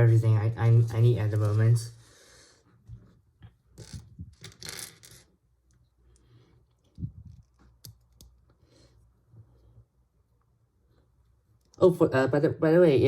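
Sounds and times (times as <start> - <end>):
plastic pieces clicking and clattering: 3.8 - 5.3.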